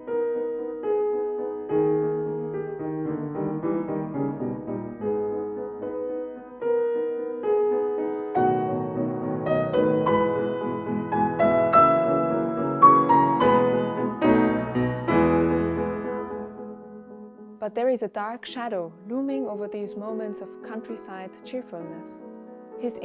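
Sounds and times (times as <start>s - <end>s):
solo classical piano: 0.0s - 17.6s.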